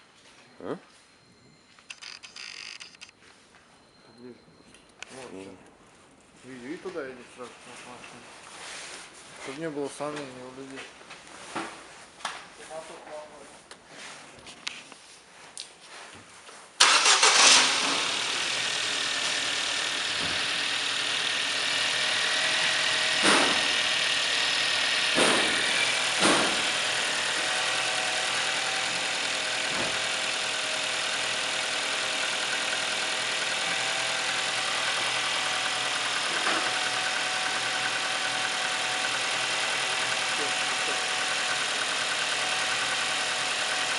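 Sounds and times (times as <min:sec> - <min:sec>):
car engine starting and idling: 0:16.8 - 0:43.9
engine revving: 0:16.8 - 0:43.9.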